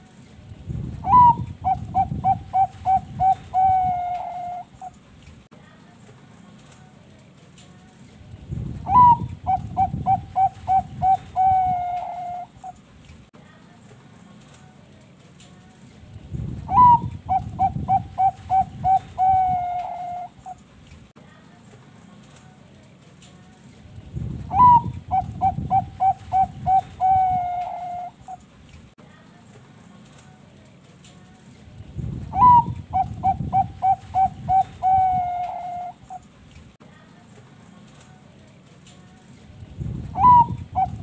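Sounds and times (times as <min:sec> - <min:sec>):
dove cooing: 0:01.0 - 0:05.0, 0:08.9 - 0:12.8, 0:16.7 - 0:20.6, 0:24.5 - 0:28.4, 0:32.3 - 0:36.2, 0:40.2 - 0:41.0.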